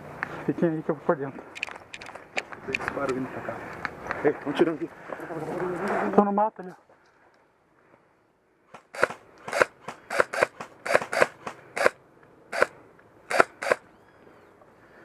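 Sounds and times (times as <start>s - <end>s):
airsoft gun shots: 8.7s - 13.8s.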